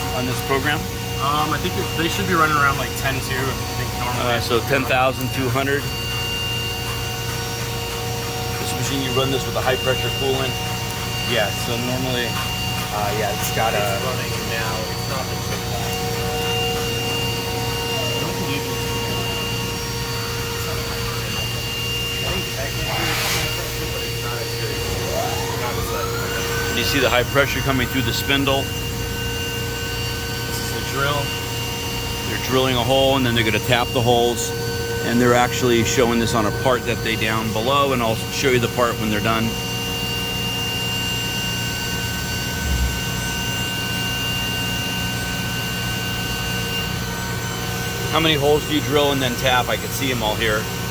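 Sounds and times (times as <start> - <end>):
low machine hum: 0.0 - 50.9
machine spindle whine: 0.0 - 50.9.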